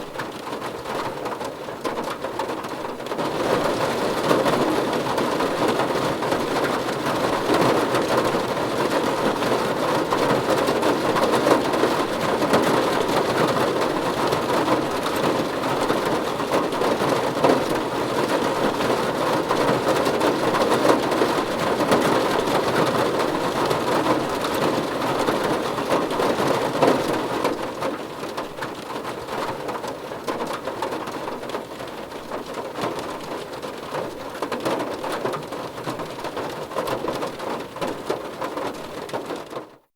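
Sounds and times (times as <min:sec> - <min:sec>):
rain on a car: 0:00.0 - 0:39.9.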